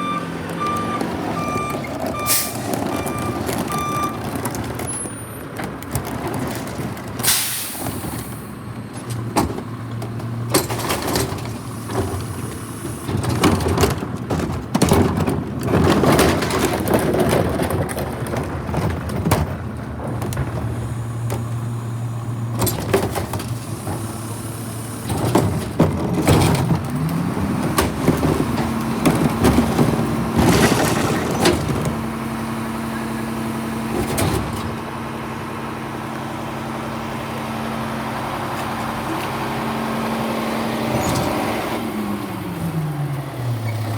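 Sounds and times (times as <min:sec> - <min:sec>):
garbage truck engine running: 0:00.0 - 0:43.9
air brake hiss: 0:07.2 - 0:08.5.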